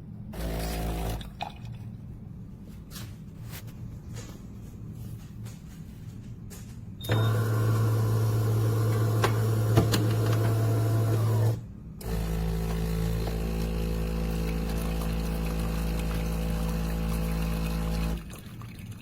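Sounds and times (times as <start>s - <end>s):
espresso machine motor hum: 0.4s - 1.3s, 7.1s - 18.3s.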